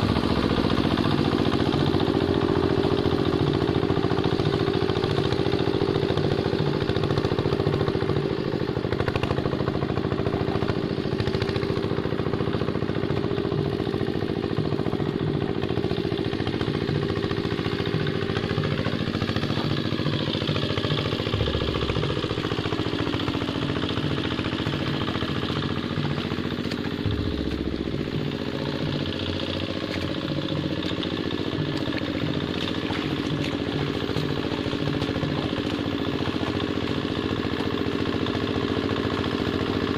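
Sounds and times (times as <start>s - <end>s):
engine rattle: 0.0s - 39.9s
hand tractor engine running: 0.0s - 39.9s.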